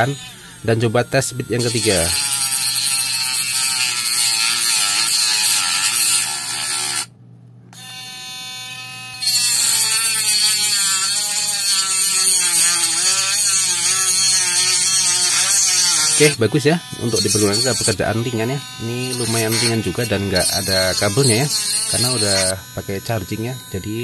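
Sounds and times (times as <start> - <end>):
mini grinder cutting plastic: 0.0 - 7.1, 7.8 - 24.0.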